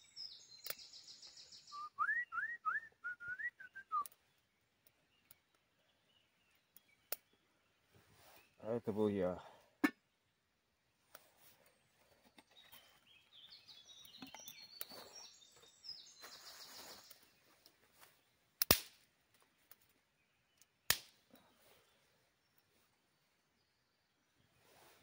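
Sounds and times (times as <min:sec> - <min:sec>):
songbird singing: 0:00.0 - 0:25.0
dry wood snapping: 0:18.6 - 0:19.9, 0:20.6 - 0:21.4.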